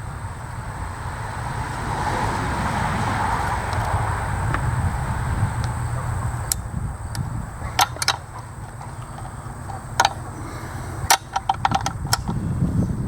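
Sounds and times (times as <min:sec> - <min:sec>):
steady low rumble: 0:00.0 - 0:13.0
wrench clinking on metal: 0:06.5 - 0:12.4.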